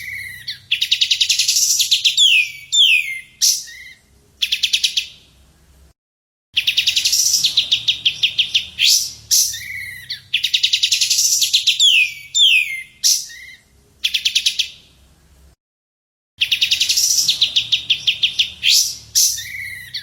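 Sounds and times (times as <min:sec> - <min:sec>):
bird downward-slurred whistles: 0:00.0 - 0:04.8, 0:06.6 - 0:14.4, 0:16.4 - 0:20.0
songbird trilling: 0:00.0 - 0:05.1, 0:06.6 - 0:14.7, 0:16.4 - 0:20.0.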